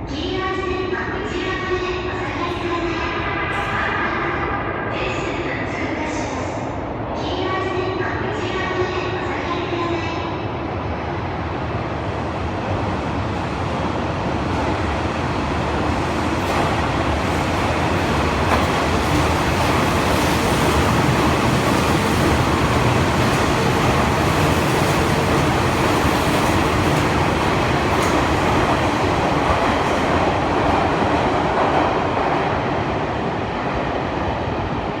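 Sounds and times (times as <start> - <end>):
train wheels rumbling on rails: 10.8 - 35.0.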